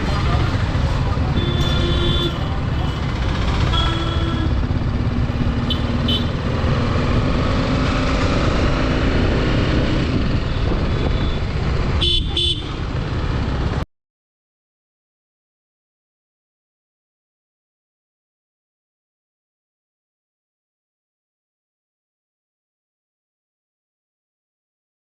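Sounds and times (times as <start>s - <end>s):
motorcycle road noise: 0.0s - 13.9s
vehicle horn honking: 1.4s - 4.6s, 5.6s - 6.4s, 10.5s - 12.8s.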